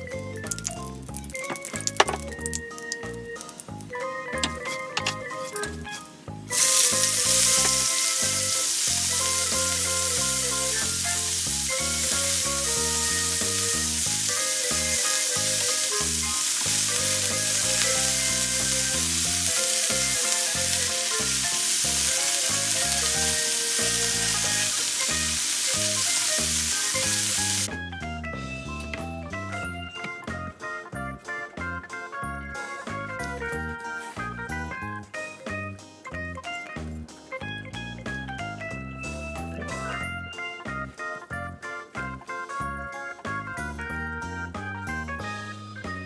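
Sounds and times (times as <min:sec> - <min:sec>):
vegetables sizzling in a frying pan: 0:06.5 - 0:27.7.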